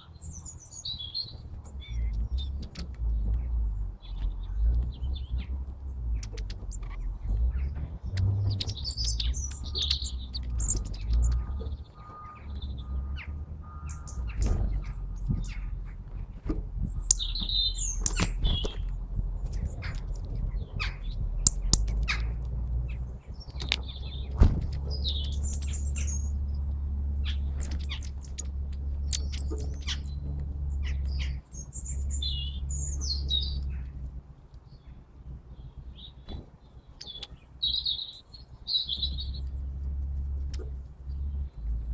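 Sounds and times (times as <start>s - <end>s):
low rumble: 0.0s - 37.8s
small birds chirping: 0.0s - 41.9s
sharp clicks: 4.1s - 7.5s, 17.0s - 20.5s, 21.4s - 22.6s, 23.4s - 26.7s.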